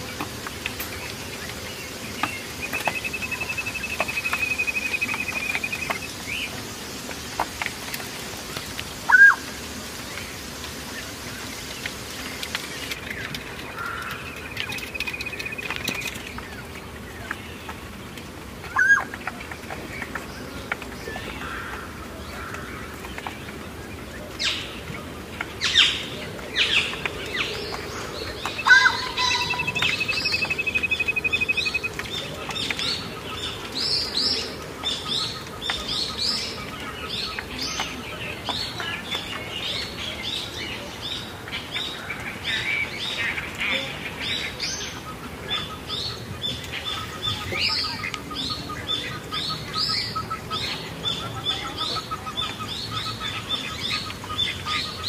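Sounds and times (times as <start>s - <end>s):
caged birds chirping: 0.0s - 55.0s
bird trilling: 28.5s - 32.0s.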